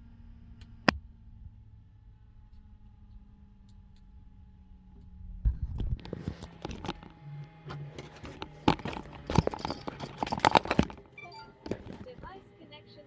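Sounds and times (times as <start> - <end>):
quiet hum: 0.0 - 13.0
irregular knocks and clicks: 5.5 - 12.3.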